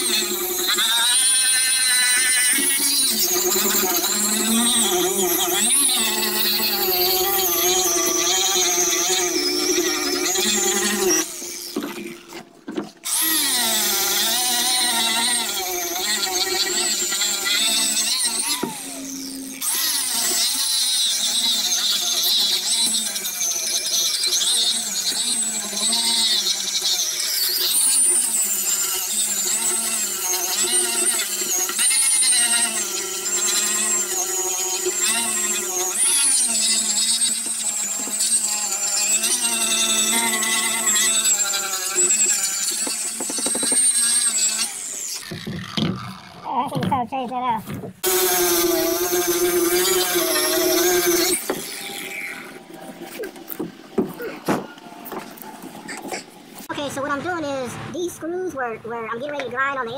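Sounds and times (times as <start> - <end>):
electric pad grinder whining: 0.0 - 46.9, 47.7 - 59.9.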